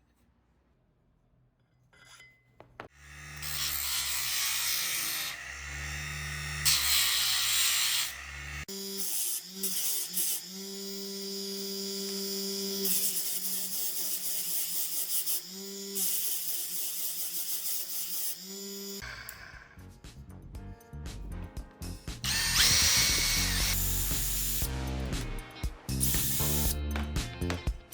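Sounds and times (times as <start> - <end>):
power tool motor whining: 2.9 - 19.6, 22.2 - 24.7
high rasping hiss: 25.9 - 26.8.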